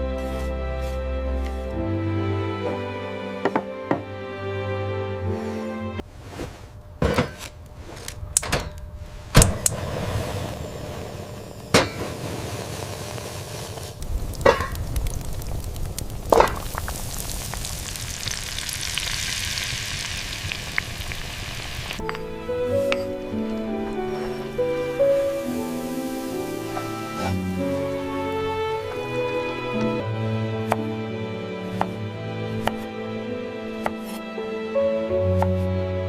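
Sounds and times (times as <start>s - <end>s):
food frying in hot pan: 12.5s - 22.0s, 24.8s - 27.2s.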